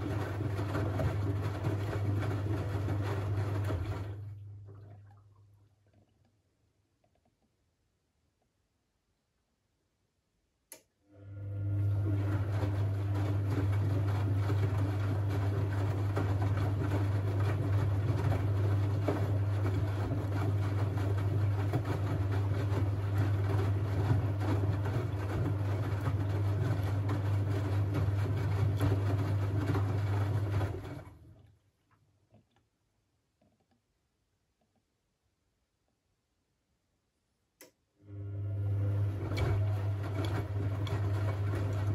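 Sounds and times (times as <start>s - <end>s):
washing machine humming: 0.0s - 6.2s, 11.0s - 31.6s, 38.0s - 41.9s.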